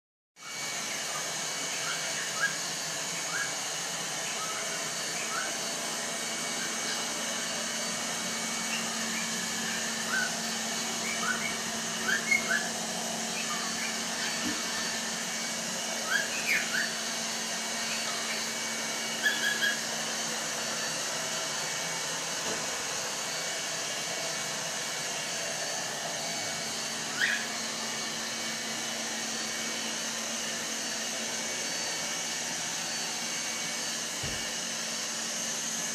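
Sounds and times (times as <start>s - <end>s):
cockatiel chirping and whistling: 1.1s - 3.6s, 4.3s - 5.6s, 8.7s - 9.4s, 10.0s - 10.4s, 11.0s - 14.8s, 16.0s - 17.0s, 19.2s - 19.9s, 27.1s - 27.5s.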